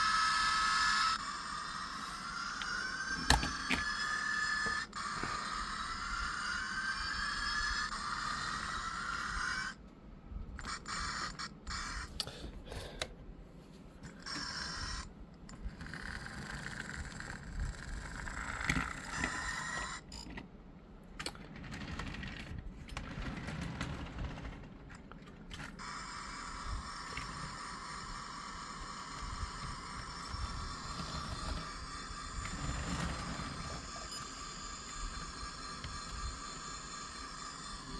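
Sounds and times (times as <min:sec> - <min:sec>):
model train motor whine: 0:00.0 - 0:09.8, 0:14.2 - 0:20.0, 0:25.6 - 0:37.9.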